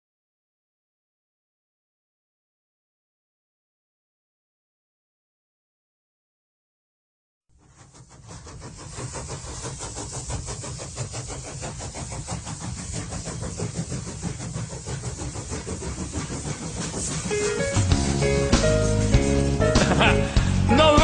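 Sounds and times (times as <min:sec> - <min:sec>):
locomotive rumbling and chugging: 0:07.6 - 0:21.0.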